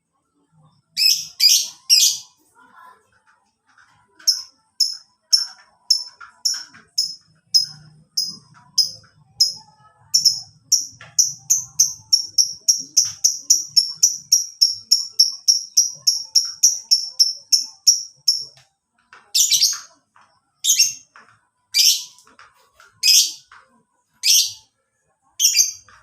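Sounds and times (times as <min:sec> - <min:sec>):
lovebird chirping: 0:00.8 - 0:02.4, 0:04.2 - 0:18.6, 0:21.7 - 0:22.2, 0:25.4 - 0:26.0.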